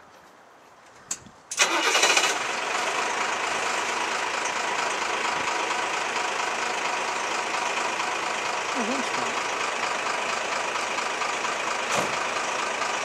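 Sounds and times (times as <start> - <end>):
diesel engine starting and idling: 1.5 - 13.0.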